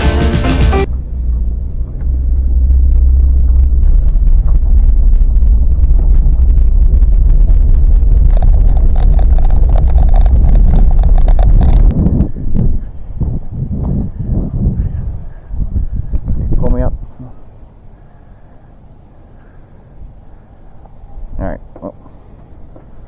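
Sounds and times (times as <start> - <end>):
boat engine rumble: 0.0 - 23.0
wind buffeting microphone: 0.8 - 18.1.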